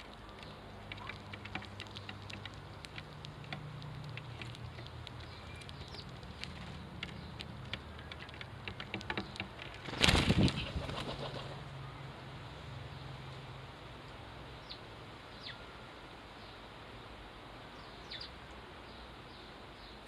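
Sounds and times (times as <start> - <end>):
small birds' wings fluttering: 0.0 - 11.7
sparrows chirping: 0.2 - 10.6, 14.4 - 20.0.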